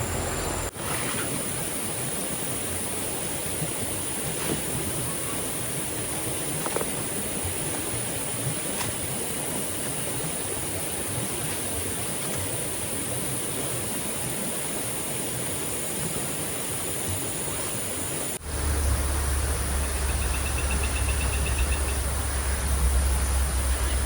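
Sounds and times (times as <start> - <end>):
steady high whine: 0.0 - 11.8, 12.8 - 24.0
rushing water: 0.0 - 24.0
deep low rumble: 18.4 - 24.0
fast-pulsing high call: 18.4 - 24.0.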